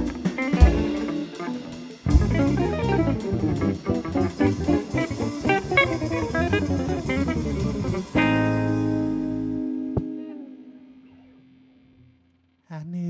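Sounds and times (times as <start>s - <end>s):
bass and drums: 0.0s - 10.0s
guitar playing quick runs: 0.0s - 11.3s.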